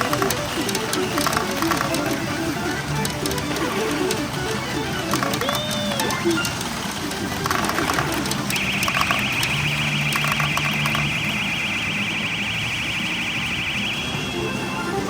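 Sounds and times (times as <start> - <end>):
machine and hall din: 0.0 - 15.0.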